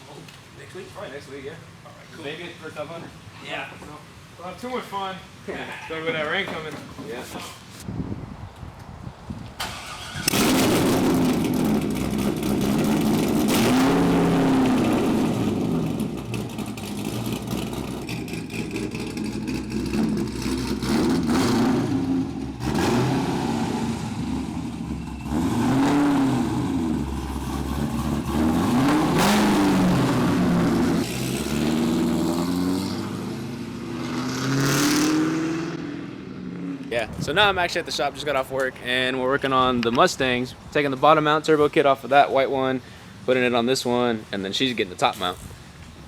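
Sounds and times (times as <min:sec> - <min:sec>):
car engine revving: 0:09.7 - 0:36.9.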